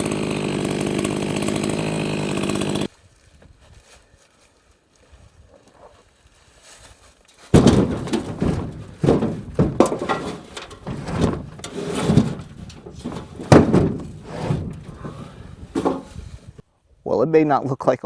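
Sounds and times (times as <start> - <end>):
heavy wooden thunks: 7.5 - 16.6.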